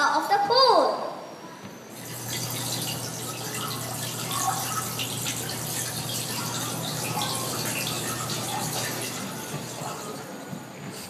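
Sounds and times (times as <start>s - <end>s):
water gushing: 1.9s - 10.5s.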